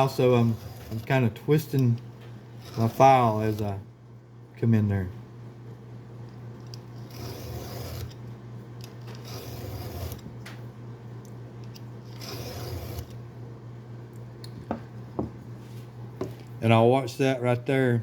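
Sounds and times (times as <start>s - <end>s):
file rasping on chain tooth: 0.0s - 1.2s, 7.0s - 8.2s, 9.2s - 10.2s, 12.2s - 13.1s
steady low hum: 0.0s - 18.0s.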